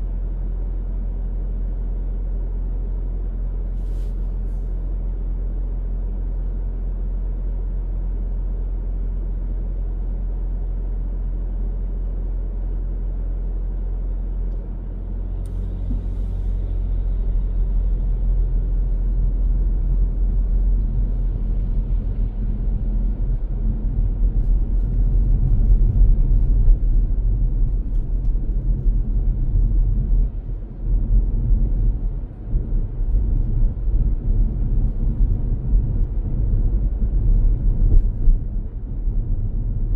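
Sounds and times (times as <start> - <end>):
car engine rumble: 0.0 - 39.9
road noise: 14.6 - 39.9.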